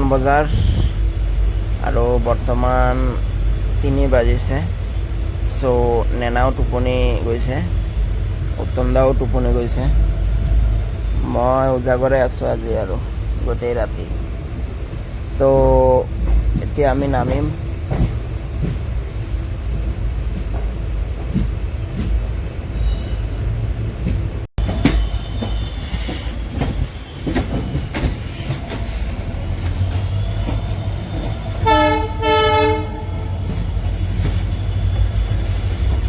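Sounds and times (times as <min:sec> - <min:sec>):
train rumbling: 0:00.0 - 0:36.0
wheel squeal: 0:22.0 - 0:23.8, 0:24.6 - 0:36.0
train horn blast: 0:31.6 - 0:33.5.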